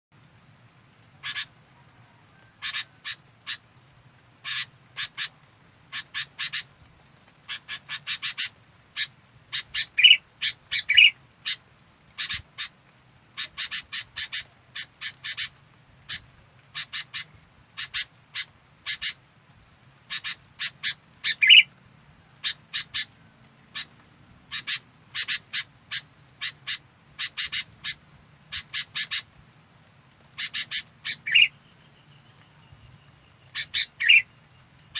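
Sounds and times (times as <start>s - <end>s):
bird chirping: 1.1s - 3.6s, 4.4s - 6.8s, 7.4s - 12.7s, 13.4s - 15.5s, 20.1s - 29.4s, 30.2s - 34.9s.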